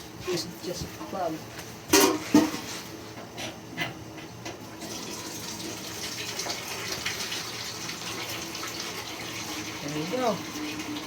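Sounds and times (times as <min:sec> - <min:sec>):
water rushing from a drain: 0:04.8 - 0:11.0.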